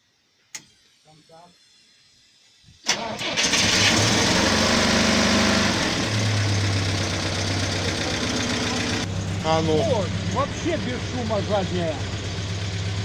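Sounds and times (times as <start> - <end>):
starter cranking engine: 2.8 - 13.0
car engine idling: 3.2 - 13.0.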